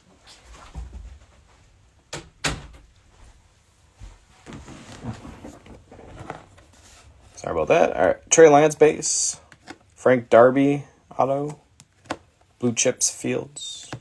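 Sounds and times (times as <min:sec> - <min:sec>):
soft clattering and rustling: 0:00.0 - 0:01.8, 0:02.7 - 0:07.8
door opening and shutting: 0:02.1 - 0:03.0.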